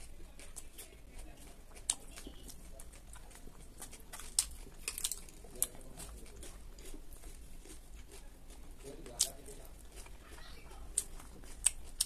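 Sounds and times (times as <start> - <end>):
chewing salad: 0.0 - 12.0
crisp crunches: 1.8 - 12.0.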